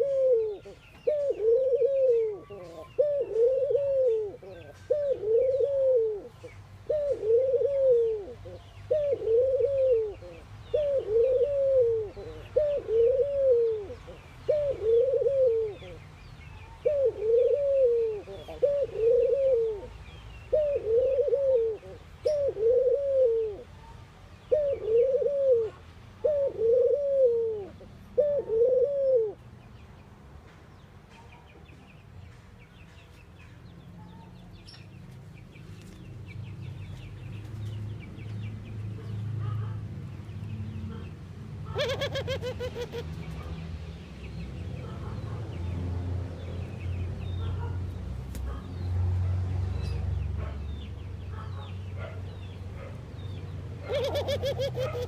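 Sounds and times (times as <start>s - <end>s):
dove cooing: 0.0s - 16.0s, 16.6s - 19.9s, 20.5s - 23.7s, 24.4s - 29.4s, 40.9s - 43.5s, 53.8s - 55.0s
small birds chirping: 0.0s - 26.8s, 29.3s - 55.0s.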